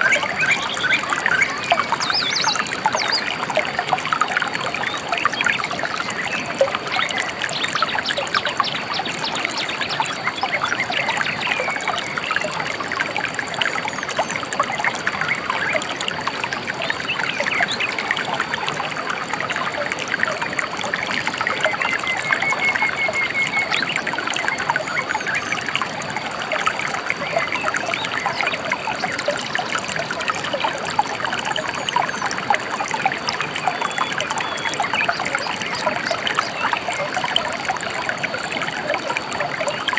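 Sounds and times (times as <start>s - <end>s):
shallow river trickling: 0.0s - 39.9s.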